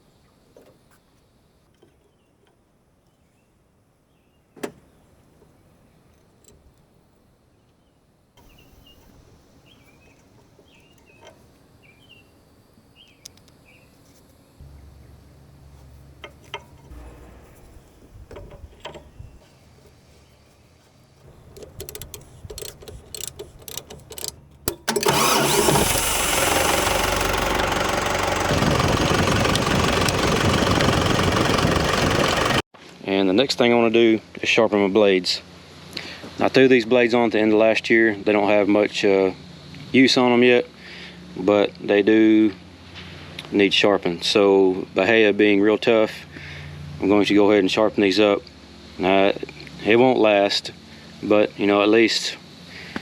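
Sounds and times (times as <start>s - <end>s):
diesel tractor engine starting: 14.6s - 20.2s, 21.1s - 32.6s.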